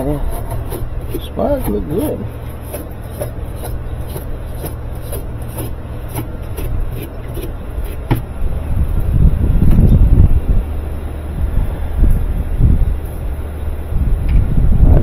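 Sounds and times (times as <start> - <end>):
rhythmic scrubbing strokes: 0.0 - 8.3
low handling bumps: 0.0 - 10.8.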